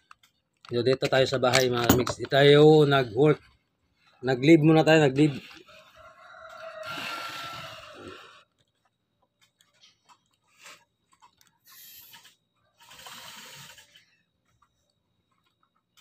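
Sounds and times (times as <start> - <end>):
crunching and chewing: 5.4 - 16.0.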